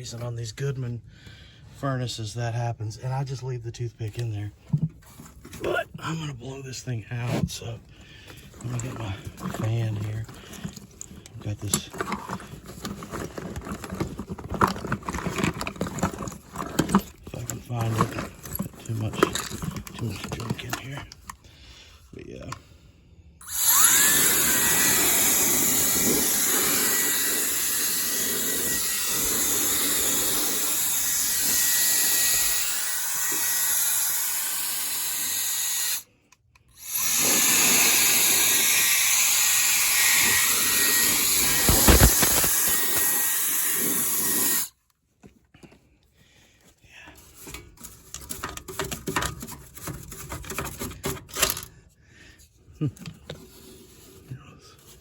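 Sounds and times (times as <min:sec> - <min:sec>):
cordless blower running: 0:23.4 - 0:36.0, 0:36.8 - 0:44.7.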